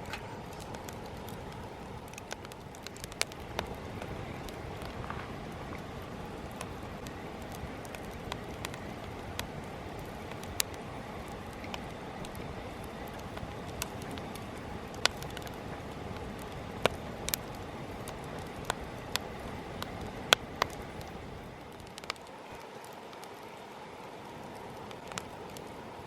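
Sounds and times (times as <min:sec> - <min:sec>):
burning wood crackling and popping: 0:00.0 - 0:26.0
campfire flames rushing: 0:00.0 - 0:26.0.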